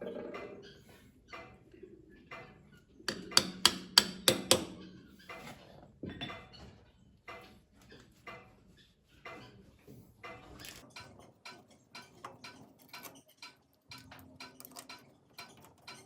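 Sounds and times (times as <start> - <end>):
hammer strikes: 3.1 - 4.9
tools knocking and clicking: 3.1 - 5.3.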